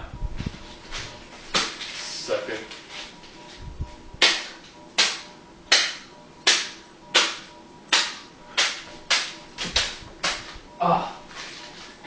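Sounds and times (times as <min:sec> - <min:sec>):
hand slapping plastic packet: 0:04.2 - 0:10.6.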